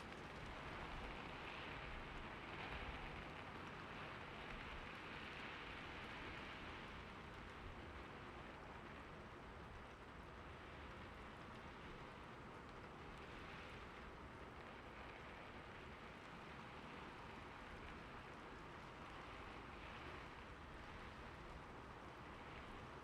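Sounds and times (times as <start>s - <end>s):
soft steady rain: 0.0s - 23.0s.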